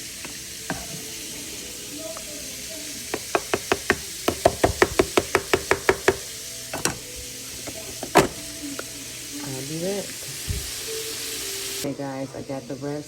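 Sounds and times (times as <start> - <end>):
rapid sharp knocks: 3.1 - 6.3.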